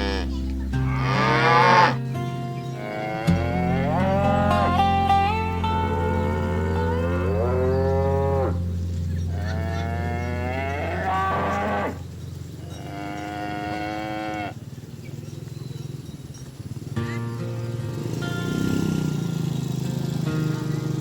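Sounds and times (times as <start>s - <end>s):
cows mooing: 0.0s - 2.1s, 2.8s - 14.6s.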